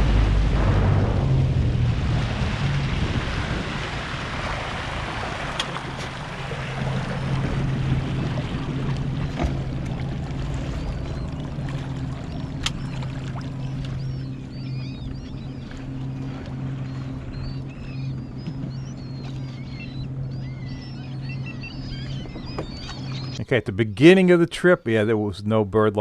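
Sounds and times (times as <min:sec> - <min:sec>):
hiss of water and wind: 0:00.0 - 0:13.6
boat motor humming: 0:00.0 - 0:26.0.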